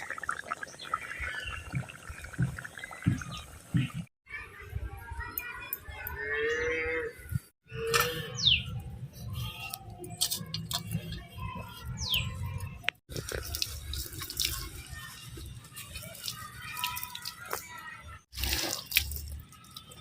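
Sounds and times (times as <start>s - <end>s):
water splashing and dripping: 0.0s - 4.1s, 12.6s - 20.0s.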